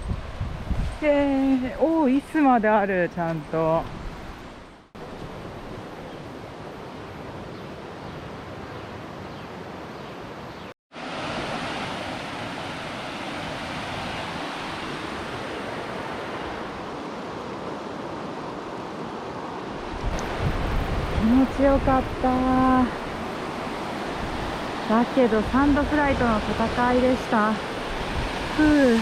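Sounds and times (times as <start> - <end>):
river water rushing: 11.0 - 29.0.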